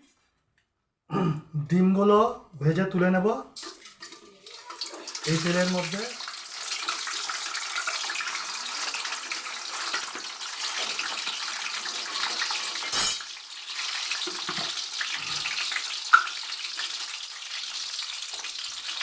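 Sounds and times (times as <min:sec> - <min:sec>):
eggs sizzling in oil: 0:03.6 - 0:19.0.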